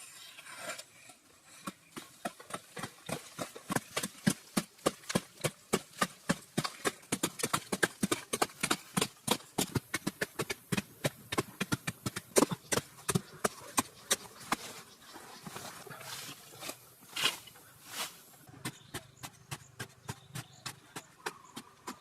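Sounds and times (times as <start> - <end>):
sharp knocks and taps: 18.6 - 22.0.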